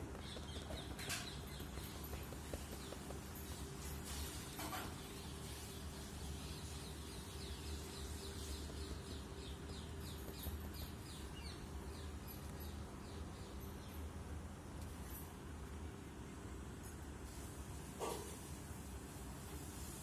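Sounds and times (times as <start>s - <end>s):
bird chirping: 0.0s - 14.1s
steady low hum: 0.0s - 20.0s.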